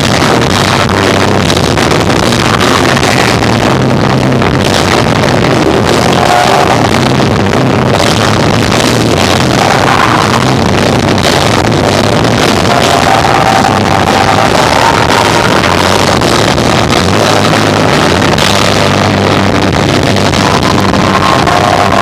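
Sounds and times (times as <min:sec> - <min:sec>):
bass guitar: 0:00.0 - 0:22.0
drums: 0:00.0 - 0:22.0
electric guitar: 0:00.0 - 0:22.0.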